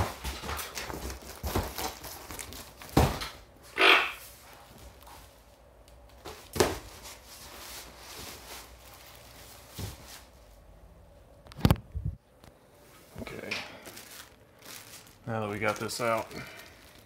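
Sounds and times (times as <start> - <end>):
cardboard rustling and scraping: 0.0 - 3.2, 6.2 - 10.4.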